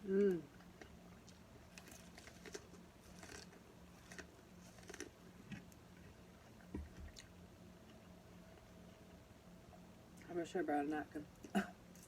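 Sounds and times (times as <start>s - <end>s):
chewing corn on the cob: 0.1s - 8.7s.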